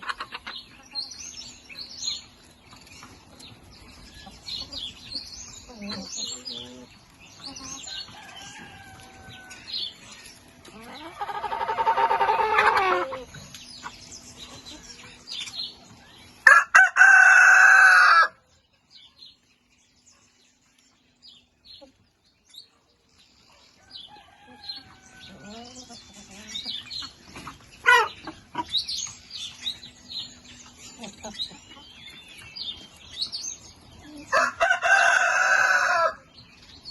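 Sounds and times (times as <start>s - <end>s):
chickens clucking: 0.0s - 36.9s
rooster crowing: 16.4s - 18.4s, 23.8s - 25.4s, 34.3s - 36.2s.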